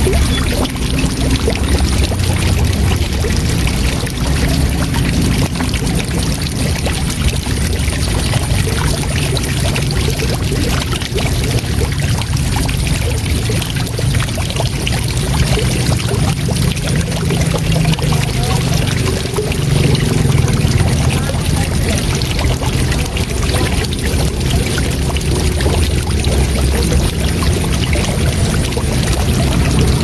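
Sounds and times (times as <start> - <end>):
waterfall rushing: 15.3 - 30.0.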